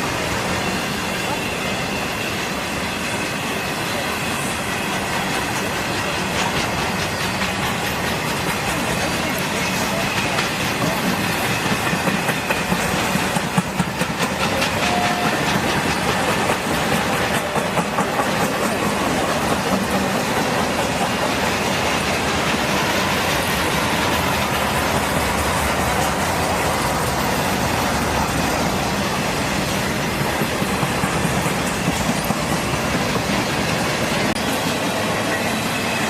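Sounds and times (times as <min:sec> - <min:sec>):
rumble of train wheels on rail: 0:00.0 - 0:36.0
wheels clacking over rail joints: 0:04.6 - 0:36.0.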